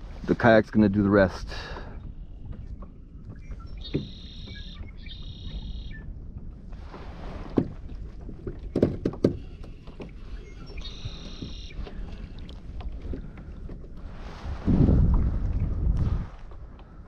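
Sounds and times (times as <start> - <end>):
wind rumbling on microphone: 0.0 - 17.0
gear knocking on hull: 7.5 - 10.2.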